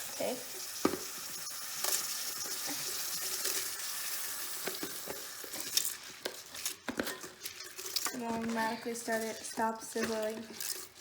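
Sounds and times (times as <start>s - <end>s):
food sizzling in hot oil: 0.0s - 10.0s
spoon scraping a pot: 4.6s - 11.0s.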